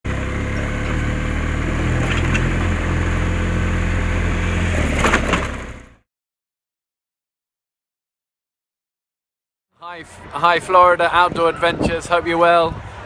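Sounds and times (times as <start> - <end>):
motorcycle engine running: 0.0 - 6.0
road and wind noise: 0.0 - 6.0, 9.9 - 13.0.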